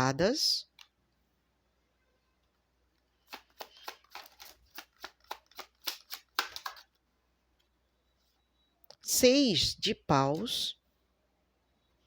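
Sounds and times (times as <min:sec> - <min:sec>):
cards being shuffled: 0:03.1 - 0:07.0.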